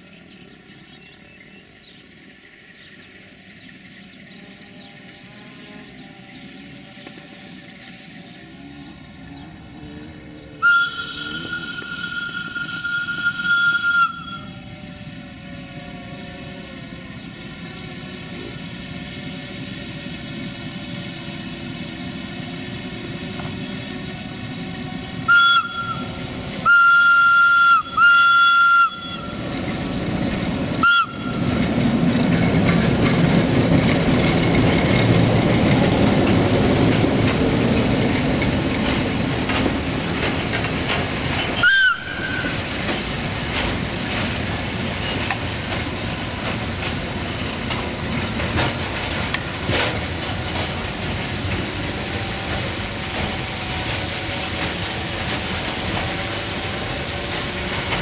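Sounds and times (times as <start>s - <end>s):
train rumble and clickety-clack: 0.0s - 58.0s
locomotive whistle blasts: 10.6s - 14.8s, 25.3s - 29.4s, 30.8s - 31.5s, 41.6s - 42.6s.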